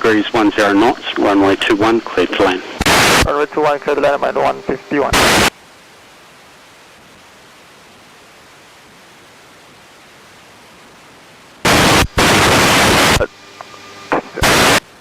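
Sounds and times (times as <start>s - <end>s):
radio static bursts: 0.0s - 5.6s, 11.6s - 15.0s
radio static hiss: 0.0s - 15.0s.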